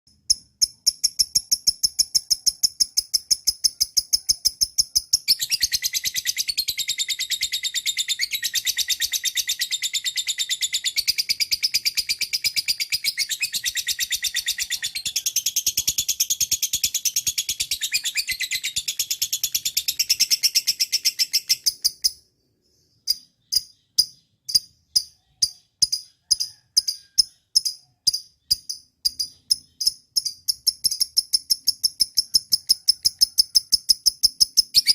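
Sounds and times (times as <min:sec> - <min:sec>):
lovebird chattering: 0:23.1 - 0:34.9.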